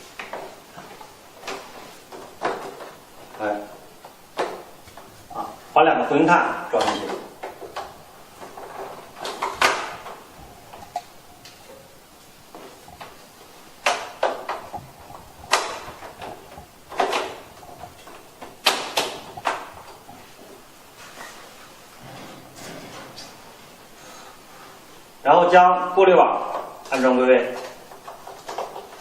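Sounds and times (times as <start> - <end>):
plastic parts clicking and knocking: 6.8 - 11.6, 13.8 - 20.2, 26.9 - 29.0.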